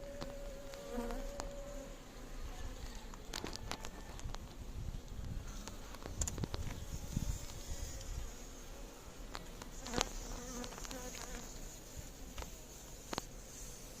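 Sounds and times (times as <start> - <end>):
bees buzzing: 0.0 - 3.1.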